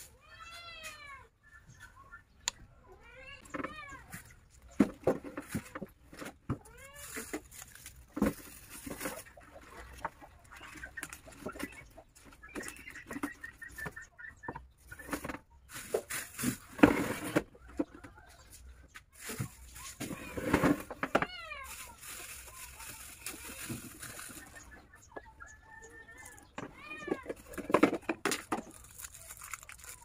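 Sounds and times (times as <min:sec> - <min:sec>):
plastic bags crinkling: 0:06.8 - 0:09.2, 0:19.2 - 0:24.7, 0:27.4 - 0:30.0.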